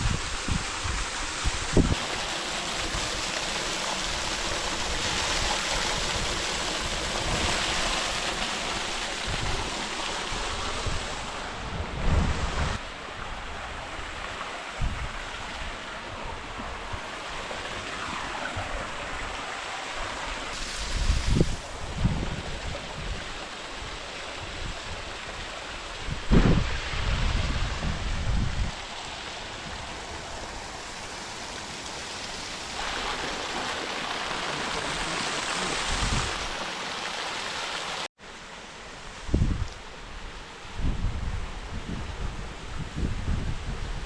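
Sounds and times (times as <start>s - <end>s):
wind buffeting microphone: 20.6s - 23.3s, 25.9s - 28.8s, 40.7s - 44.0s.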